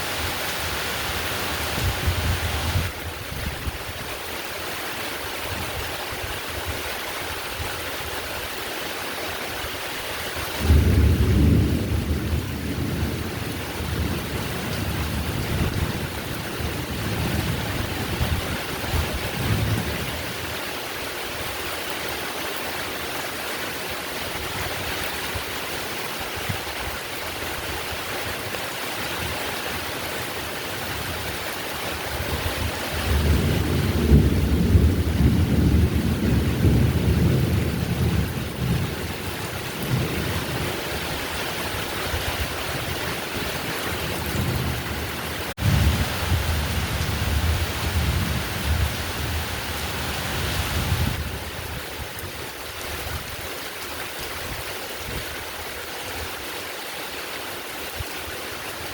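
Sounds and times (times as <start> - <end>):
heavy rain falling: 0.0 - 58.9
thunder rumbling: 10.5 - 20.4, 30.7 - 51.8.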